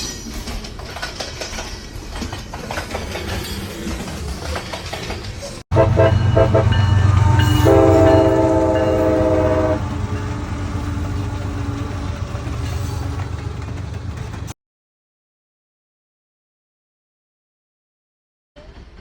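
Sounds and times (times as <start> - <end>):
diesel locomotive engine rumble: 0.4 - 14.6
locomotive air horn: 5.7 - 10.2.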